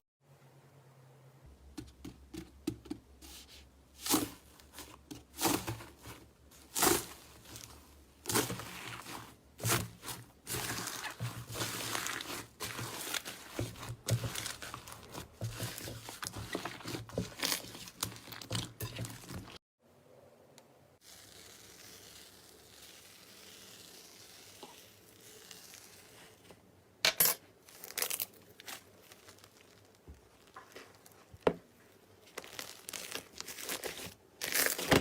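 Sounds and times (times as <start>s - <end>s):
slime crackling and popping: 27.9s - 31.3s, 32.3s - 35.0s.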